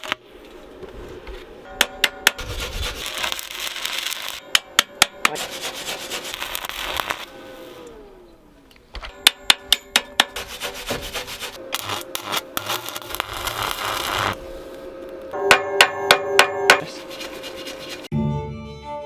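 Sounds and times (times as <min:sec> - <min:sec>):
harsh scraping: 0:00.0 - 0:04.4, 0:05.1 - 0:08.2, 0:09.9 - 0:18.1
hammer ringing on steel: 0:01.7 - 0:02.4, 0:09.1 - 0:10.4, 0:15.4 - 0:17.0.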